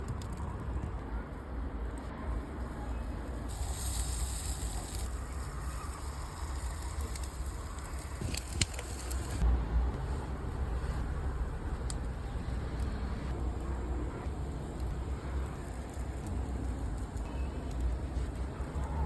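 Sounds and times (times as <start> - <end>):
steady low rumble: 0.0 - 19.0
wood fire hissing and crackling: 0.0 - 19.0
fire popping sharply: 3.5 - 9.4.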